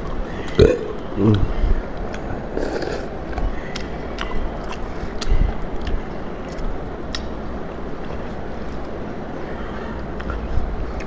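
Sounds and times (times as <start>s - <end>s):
person chewing noodles: 0.0s - 9.2s, 10.0s - 11.0s.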